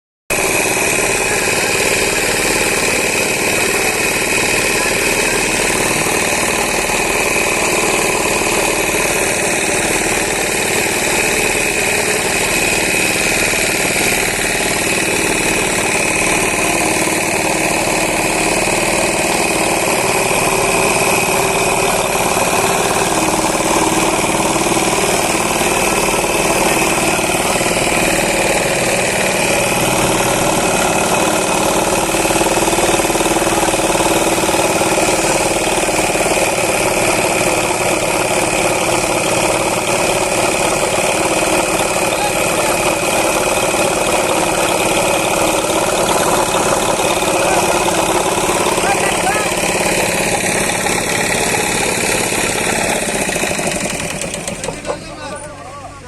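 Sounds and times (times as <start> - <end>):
diesel engine running: 0.3 - 56.0.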